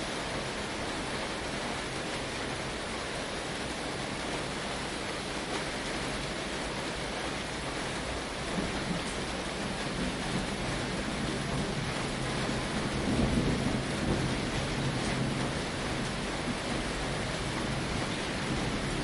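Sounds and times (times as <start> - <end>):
rain drumming on a tin roof: 0.0 - 19.0
low rumble of thunder: 8.2 - 19.0.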